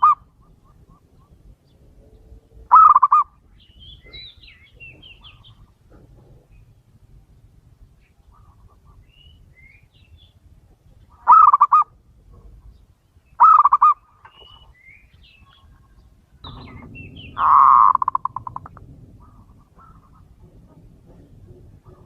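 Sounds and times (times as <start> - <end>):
small birds chirping: 0.0 - 20.4
dove cooing: 2.7 - 3.3, 11.2 - 11.9, 13.4 - 14.0, 16.4 - 22.0.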